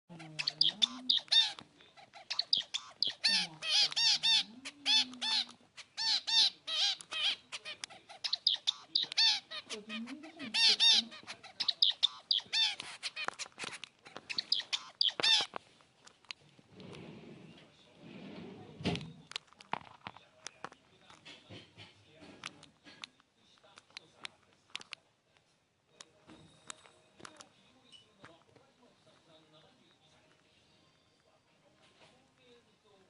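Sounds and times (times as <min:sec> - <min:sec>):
budgerigar clicks and tapping: 0:00.2 - 0:16.4
finch honking calls: 0:08.2 - 0:13.3.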